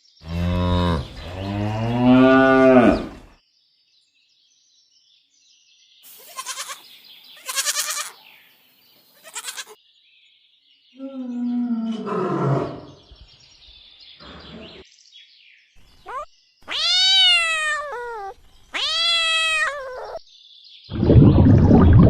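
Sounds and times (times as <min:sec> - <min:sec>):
cat meowing: 0:06.2 - 0:06.8, 0:07.4 - 0:08.1, 0:09.2 - 0:09.8, 0:15.8 - 0:20.2.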